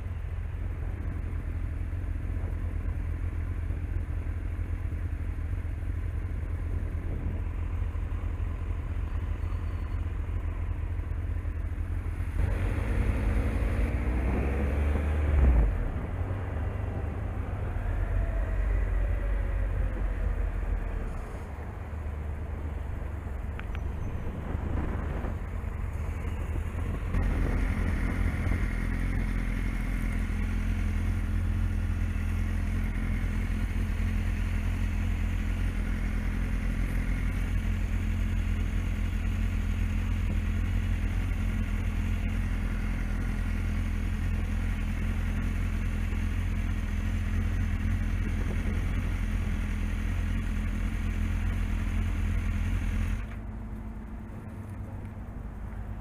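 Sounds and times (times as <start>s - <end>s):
motorcycle engine idling: 0.0s - 12.4s, 17.0s - 56.0s
motorcycle engine pulling away: 12.2s - 21.5s, 23.7s - 53.5s.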